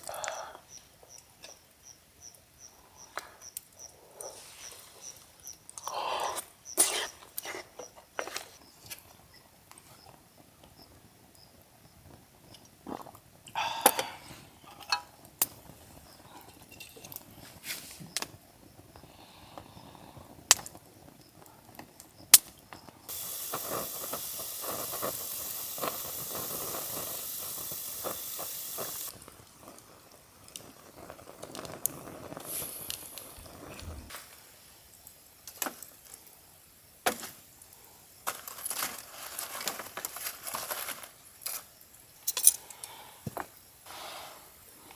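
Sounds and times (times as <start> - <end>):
steady hiss: 23.1 - 38.3, 42.2 - 44.9.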